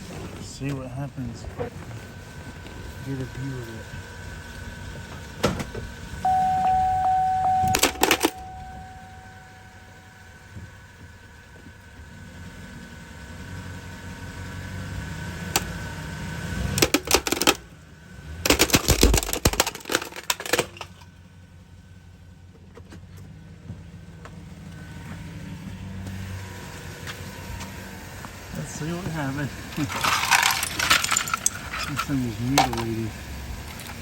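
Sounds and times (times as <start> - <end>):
heater cracking and crunching: 0.0 - 6.2, 16.6 - 21.2, 26.0 - 34.0
truck engine running: 0.0 - 34.0.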